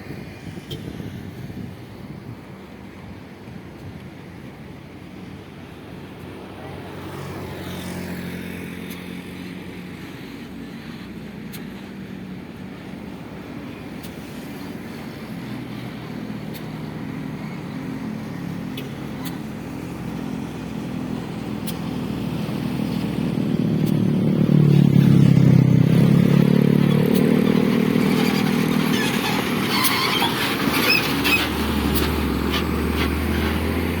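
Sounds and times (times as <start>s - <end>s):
dump truck engine running: 23.0s - 34.0s.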